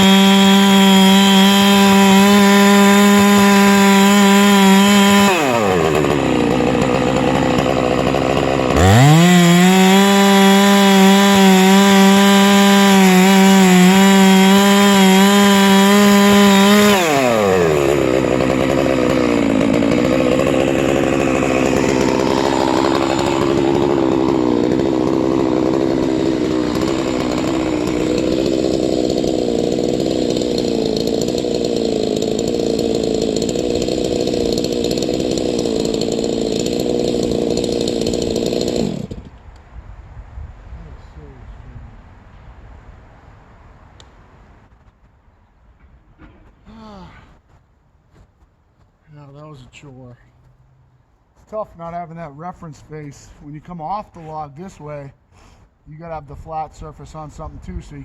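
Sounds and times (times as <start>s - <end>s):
chainsaw running: 0.0s - 39.4s.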